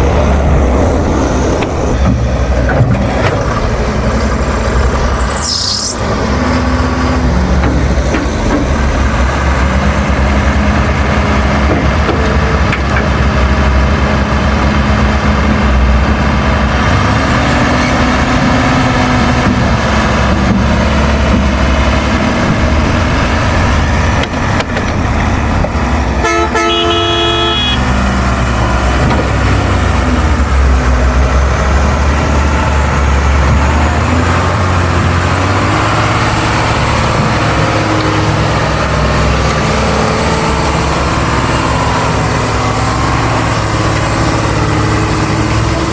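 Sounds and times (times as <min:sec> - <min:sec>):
heavy diesel engine running: 0:00.0 - 0:45.9
vehicle horn: 0:26.2 - 0:28.0.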